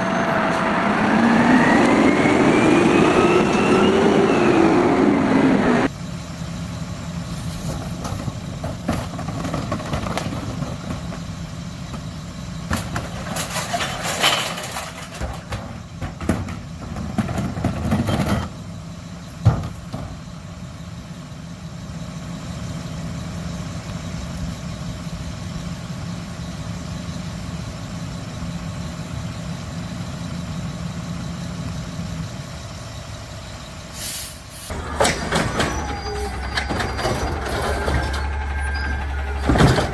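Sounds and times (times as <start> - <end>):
garbage truck engine idling: 5.9 - 39.9
clatter and knocks: 39.2 - 39.9.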